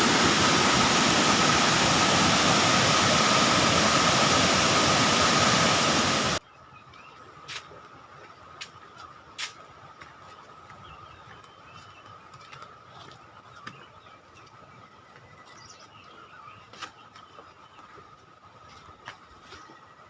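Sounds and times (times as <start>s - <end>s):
steady high-pitched hum: 0.0s - 6.4s.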